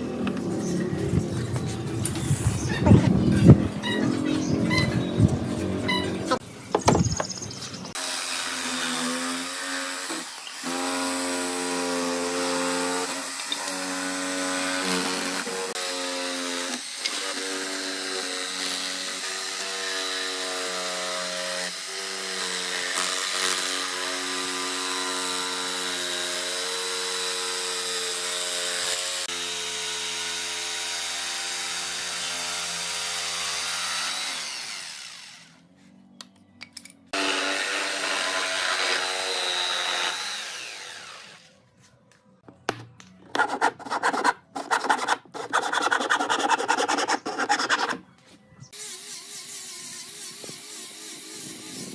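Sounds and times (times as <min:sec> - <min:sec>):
electric power tool running: 0:27.8 - 0:35.6, 0:37.2 - 0:41.5.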